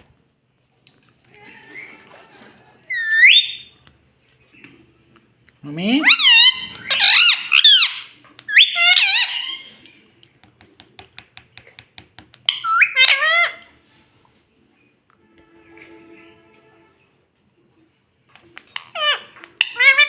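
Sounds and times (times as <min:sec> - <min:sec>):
parrot squawking: 0:02.9 - 0:03.7, 0:06.0 - 0:09.9, 0:12.5 - 0:13.7, 0:18.6 - 0:20.0.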